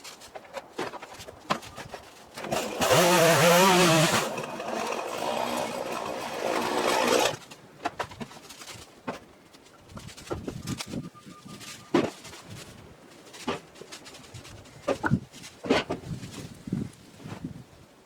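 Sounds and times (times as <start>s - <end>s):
chainsaw running at high revs: 2.5s - 7.4s.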